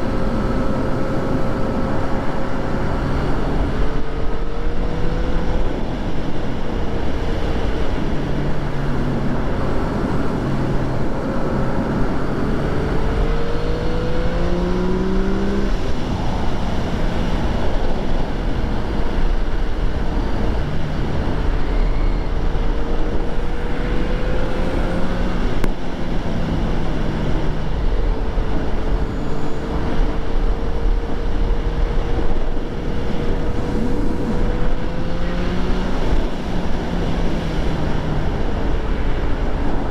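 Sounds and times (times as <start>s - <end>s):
wind and road noise: 0.0s - 39.9s
motorcycle engine revving: 7.6s - 17.6s.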